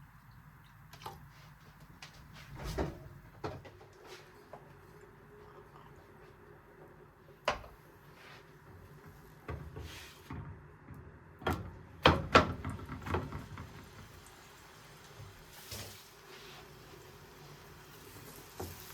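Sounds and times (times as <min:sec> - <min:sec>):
kitchen items knocking and clacking: 0:11.5 - 0:13.8.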